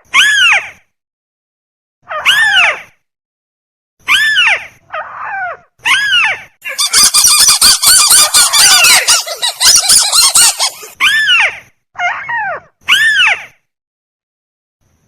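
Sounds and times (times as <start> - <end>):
crake calls: 6.7 - 11.0
rapid chattering bird notes: 6.7 - 11.0.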